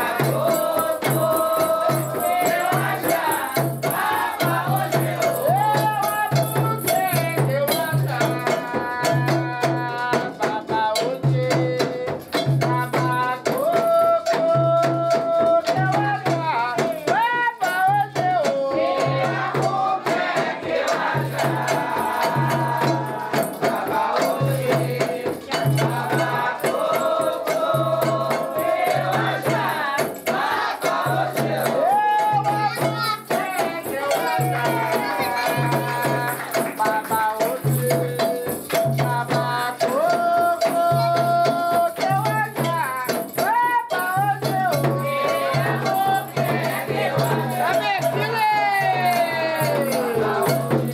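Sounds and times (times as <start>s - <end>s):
shaken rattle clicking: 0.0s - 19.1s, 20.2s - 50.9s
voices singing: 0.0s - 50.9s.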